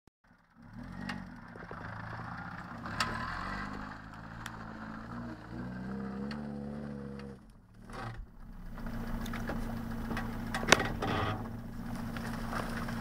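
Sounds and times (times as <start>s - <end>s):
car engine driving off-road: 0.2s - 13.0s.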